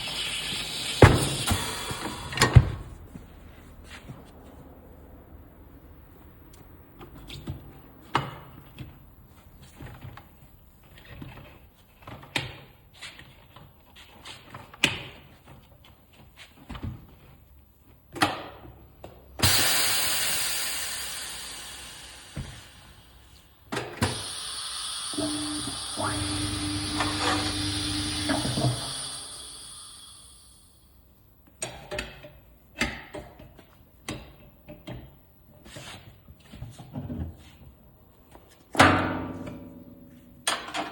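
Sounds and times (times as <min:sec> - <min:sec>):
air hissing out: 0:00.0 - 0:02.8, 0:19.4 - 0:31.0
low hum: 0:25.0 - 0:30.9.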